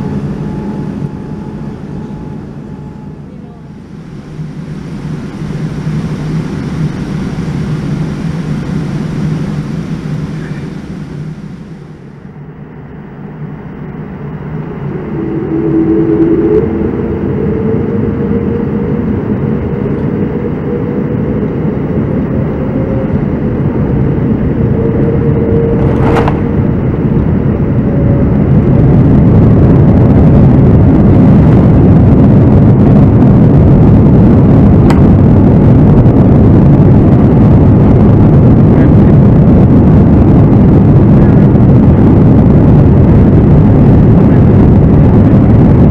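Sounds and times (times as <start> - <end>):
jet engines spooling up: 13.9 - 27.8.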